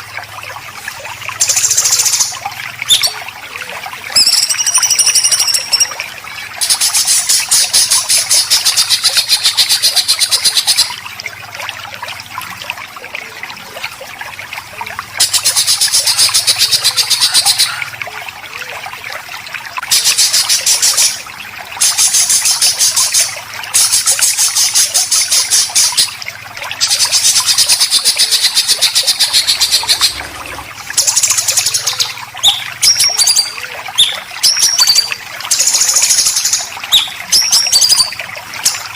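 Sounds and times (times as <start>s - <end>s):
bird chirps: 4.2s - 5.9s
songbird fast rough notes: 28.4s - 32.2s.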